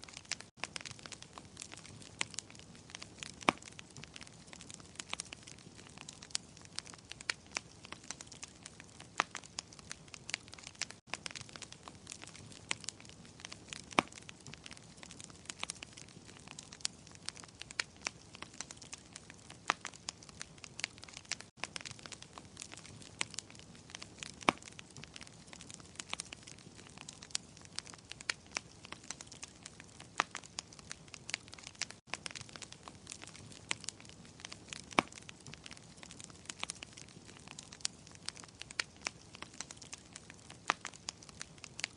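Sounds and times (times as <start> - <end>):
wood fire crackling and popping: 0.0 - 41.9.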